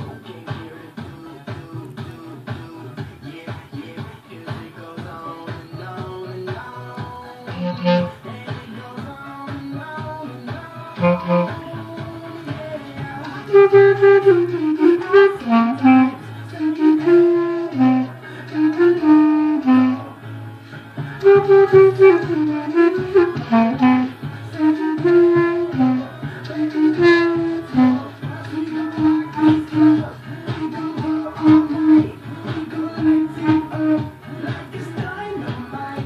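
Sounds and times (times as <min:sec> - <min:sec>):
backing track with bass line: 0:00.0 - 0:36.0
clarinet melody: 0:07.5 - 0:08.3, 0:11.0 - 0:12.6, 0:13.2 - 0:20.2, 0:21.2 - 0:34.4.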